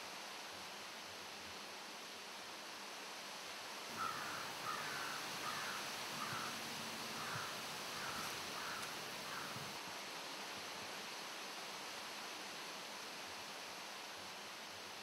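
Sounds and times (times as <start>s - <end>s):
background hiss: 0.0s - 15.0s
bird calling short calls: 4.0s - 9.6s.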